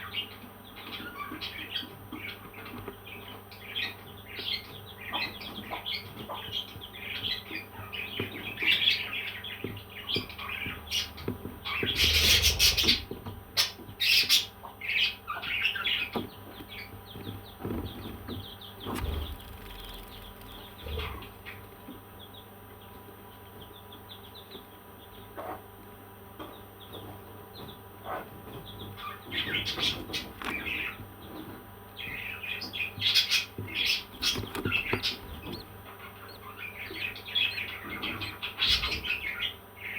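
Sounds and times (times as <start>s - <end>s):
parrots chirping: 11.7s - 16.1s, 18.8s - 21.6s, 33.1s - 39.6s.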